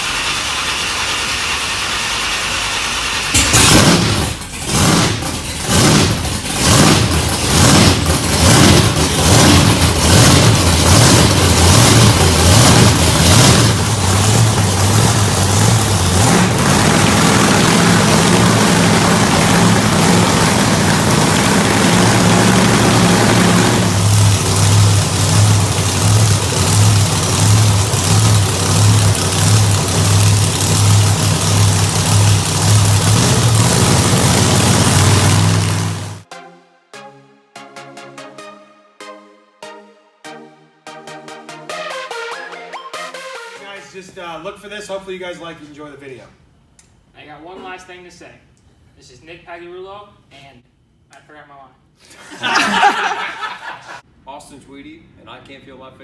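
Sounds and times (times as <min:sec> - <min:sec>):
monster truck engine revving: 0:00.0 - 0:36.2.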